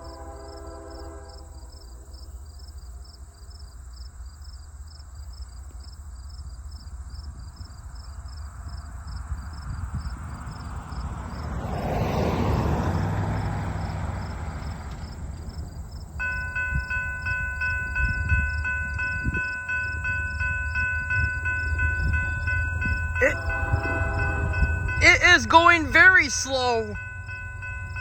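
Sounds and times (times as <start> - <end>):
freight train rumbling: 0.0 - 3.7, 6.6 - 28.0
level-crossing bell ringing: 16.2 - 28.0.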